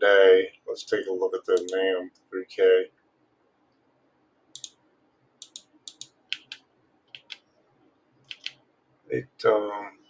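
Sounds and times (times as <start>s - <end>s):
keyboard key clicks: 8.3s - 8.6s.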